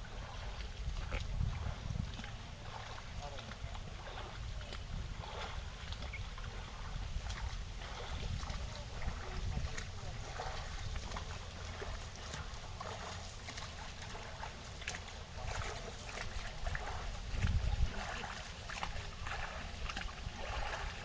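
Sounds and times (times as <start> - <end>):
small waves lapping on rocks: 0.0 - 21.0
wind rumble on microphone: 0.0 - 21.0.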